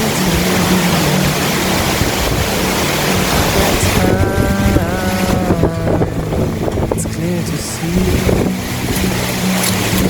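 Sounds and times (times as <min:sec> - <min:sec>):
gusty wind buffeting microphone: 0:00.0 - 0:10.0.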